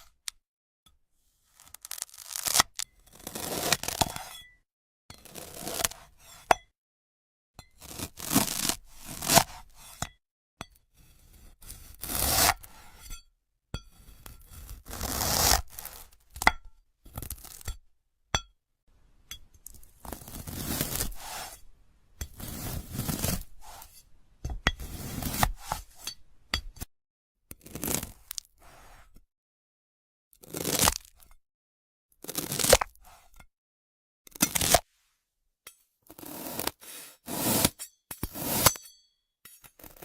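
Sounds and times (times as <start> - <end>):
knife crackling through crystal fruit: 1.6 - 4.4, 36.2 - 40.0.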